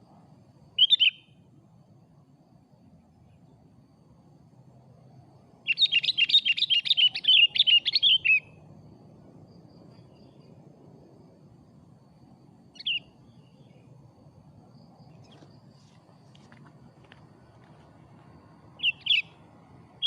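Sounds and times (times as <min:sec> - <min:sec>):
bulbul chirping song: 0:00.8 - 0:01.5, 0:05.6 - 0:08.7, 0:12.7 - 0:14.0, 0:18.7 - 0:20.0.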